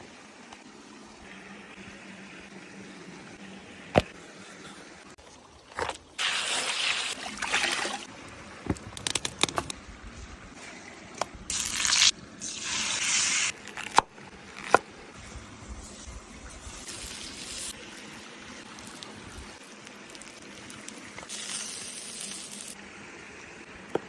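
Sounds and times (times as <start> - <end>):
food sizzling on hot stone: 11.5 - 13.6, 15.2 - 22.8.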